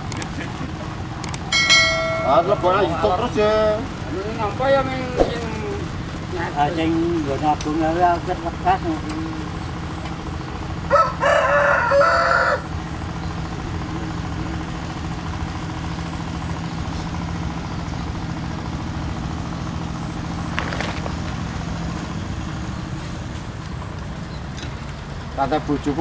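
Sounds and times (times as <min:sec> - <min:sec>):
diesel engine running: 0:00.0 - 0:26.0
rooster crowing: 0:10.8 - 0:12.9.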